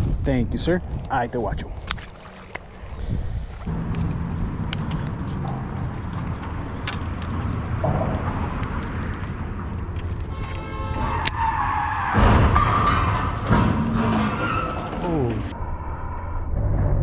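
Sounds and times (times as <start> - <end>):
road traffic rumble: 0.0 - 16.2
tyre squeal: 10.4 - 15.6
car crash: 11.1 - 17.0.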